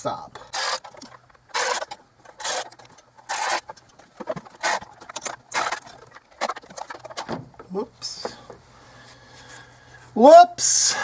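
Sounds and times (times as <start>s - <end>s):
ratchet wrench clicking: 0.5s - 3.6s.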